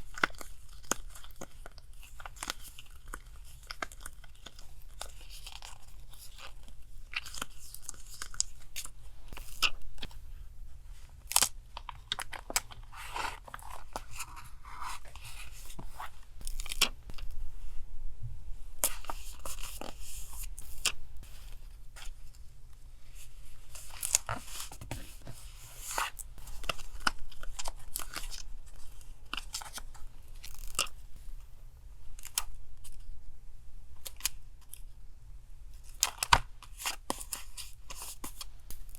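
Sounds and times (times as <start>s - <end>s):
paper rustling: 11.0s - 17.3s, 23.1s - 30.9s.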